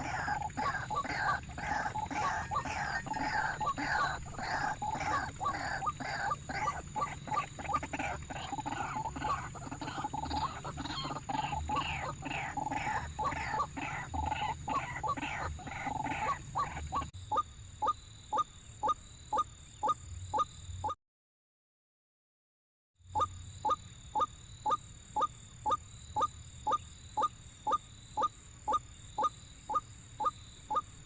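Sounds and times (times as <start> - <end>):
waterhen calling: 0.0 - 20.0.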